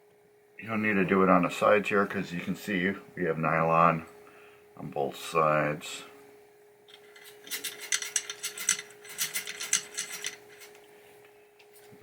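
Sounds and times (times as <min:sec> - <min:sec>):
faint steady hum: 0:00.0 - 0:12.0
light clicks and clacks of parts: 0:06.9 - 0:11.9.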